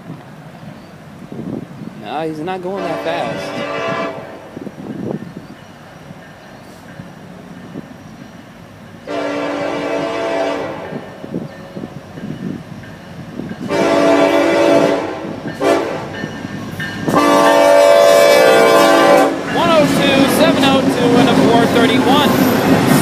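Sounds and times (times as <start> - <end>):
train rumbling: 0.0 - 23.0
locomotive air horn: 2.8 - 4.4, 9.1 - 11.1, 13.6 - 16.1, 17.1 - 19.5.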